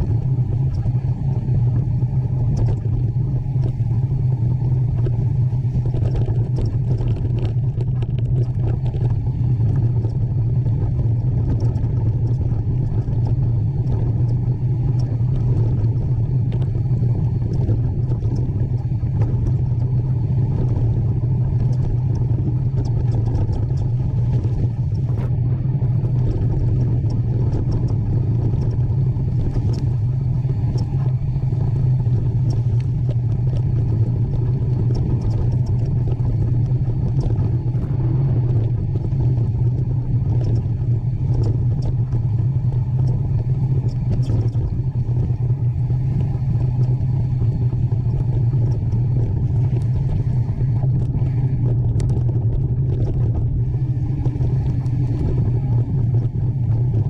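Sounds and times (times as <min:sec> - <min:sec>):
mountain bike rumbling on trail: 0:00.0 - 0:57.0.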